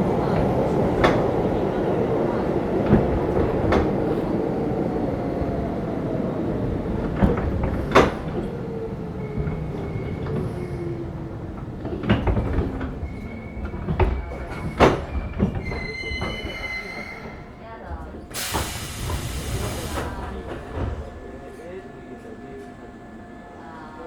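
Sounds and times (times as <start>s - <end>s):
high wheel squeal: 15.5s - 17.5s.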